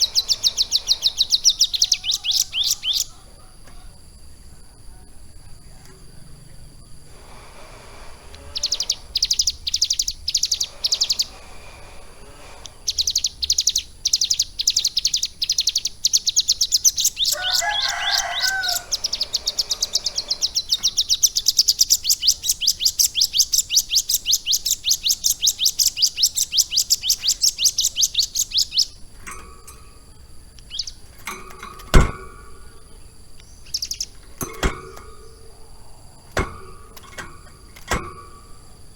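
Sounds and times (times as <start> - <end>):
bird singing high notes: 0.0 - 3.2, 8.2 - 29.0
low bird chattering: 0.0 - 4.1, 6.1 - 38.9.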